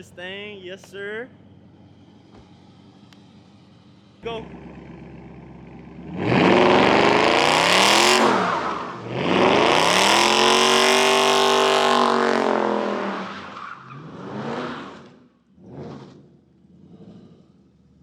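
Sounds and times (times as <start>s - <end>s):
car engine revving hard: 4.4s - 17.5s.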